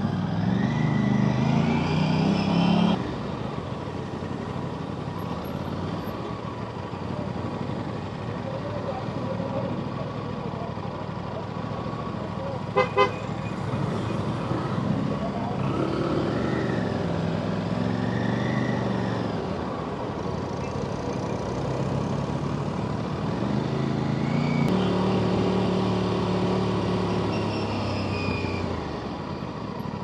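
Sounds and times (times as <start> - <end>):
motorcycle engine accelerating: 21.4 - 27.3.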